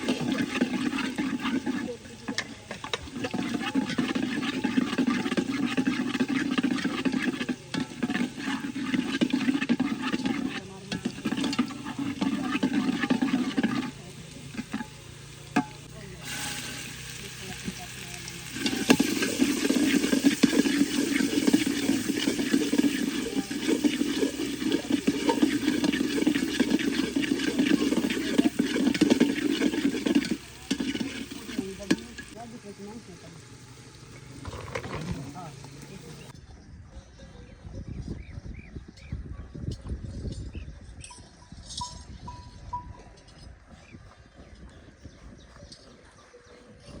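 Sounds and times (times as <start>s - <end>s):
spoon scraping cooking pot: 0.0s - 32.4s, 34.2s - 36.3s.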